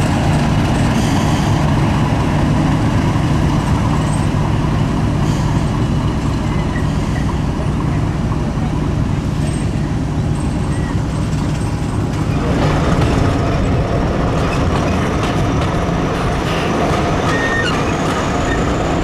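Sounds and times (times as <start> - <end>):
diesel locomotive engine running: 0.0 - 19.0.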